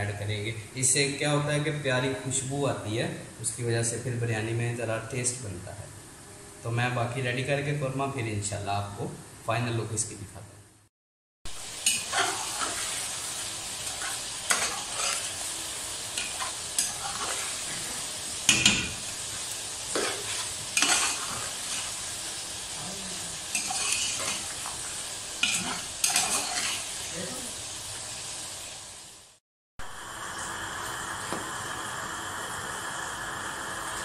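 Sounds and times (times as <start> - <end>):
food sizzling in oil: 11.5 - 34.0
metal spoon scraping a pot: 14.0 - 15.3, 19.9 - 21.9, 23.5 - 24.4, 25.4 - 26.8.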